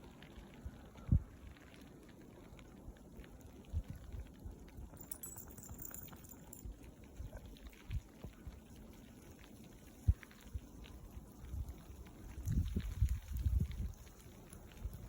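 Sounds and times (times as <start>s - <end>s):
wind buffeting microphone: 11.4s - 14.0s.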